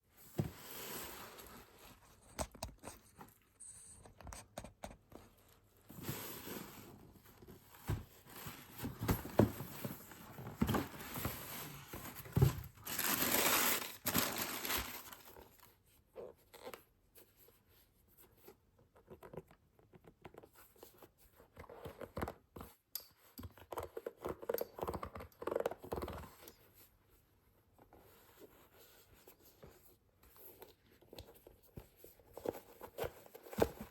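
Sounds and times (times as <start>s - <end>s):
paper rustling: 10.6s - 15.6s
paper packaging crinkling and tearing: 12.7s - 15.6s.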